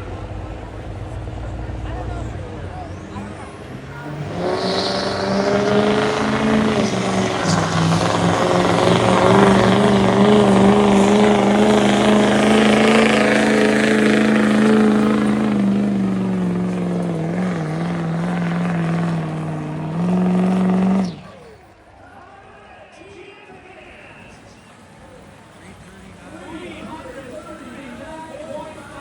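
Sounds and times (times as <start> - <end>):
diesel truck engine at high revs: 0.0 - 21.7.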